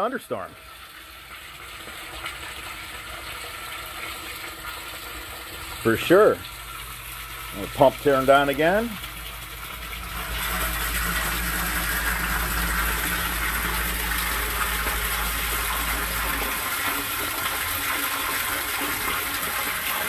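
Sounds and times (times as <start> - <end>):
pump humming: 0.3 - 20.0
water rushing: 4.0 - 20.0.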